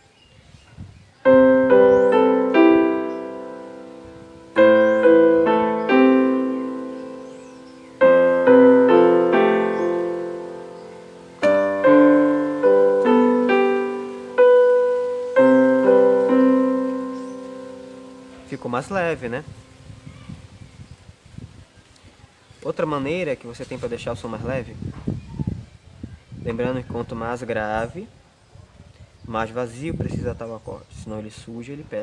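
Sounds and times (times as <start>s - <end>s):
keyboard playing arpeggiated chords: 1.2s - 19.8s.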